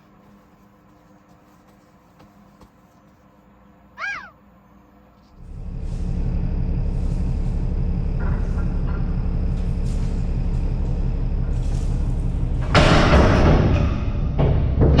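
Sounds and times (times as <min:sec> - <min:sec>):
diesel engine idling: 0:05.4 - 0:12.6.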